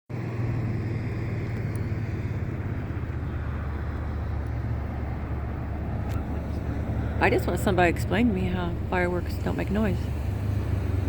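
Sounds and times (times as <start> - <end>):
low rumble of engine or traffic: 0.1 - 11.0.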